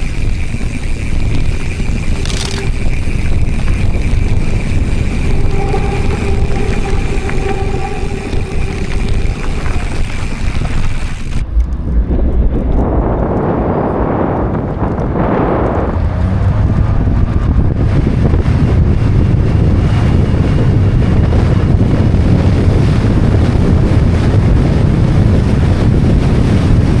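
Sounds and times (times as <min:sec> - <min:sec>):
mountain bike rolling on trail: 0:00.0 - 0:11.8
wind buffeting microphone: 0:00.0 - 0:27.0.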